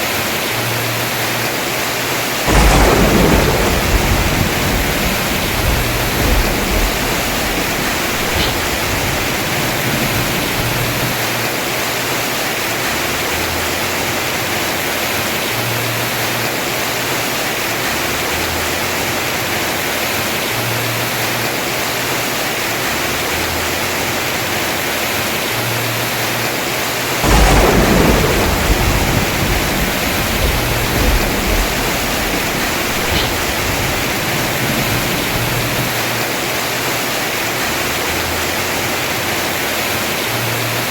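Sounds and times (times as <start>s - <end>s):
heavy rain on roof: 0.0s - 40.9s
thunder clap rumbling: 2.4s - 11.6s, 27.1s - 36.6s.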